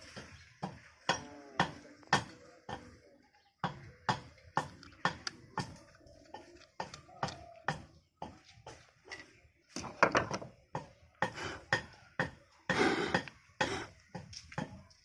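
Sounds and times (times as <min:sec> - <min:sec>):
metal tools clinking and knocking: 0:09.1 - 0:10.5.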